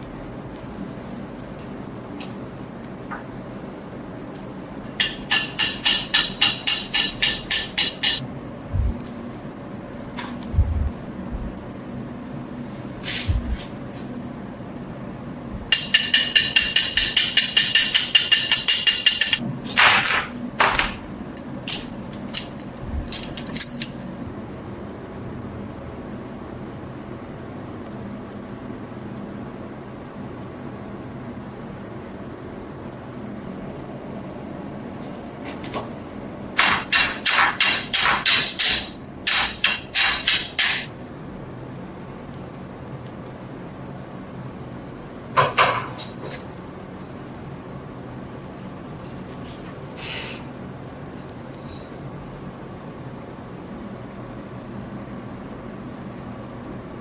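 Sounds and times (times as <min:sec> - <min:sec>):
hammer striking metal: 0:05.0 - 0:08.2, 0:15.7 - 0:21.1, 0:36.6 - 0:40.9
rapid tapping on ringing metal: 0:05.0 - 0:08.2, 0:15.7 - 0:19.4.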